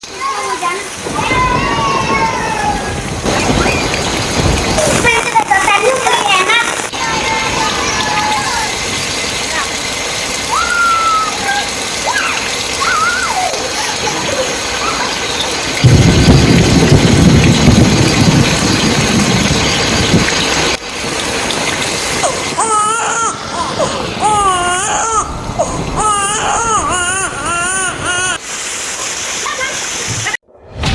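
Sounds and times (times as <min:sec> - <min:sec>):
rain falling: 0:00.0 - 0:30.4
rush of water: 0:00.0 - 0:30.4
young child crying: 0:01.2 - 0:03.1, 0:22.2 - 0:28.4.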